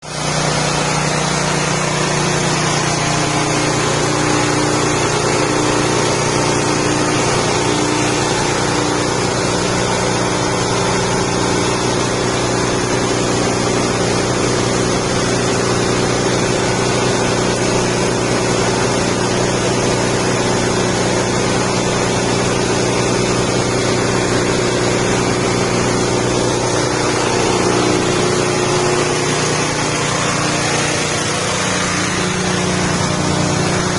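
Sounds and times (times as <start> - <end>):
grinding machine engine hum: 0.0 - 33.9
dense rushing noise: 21.4 - 33.9.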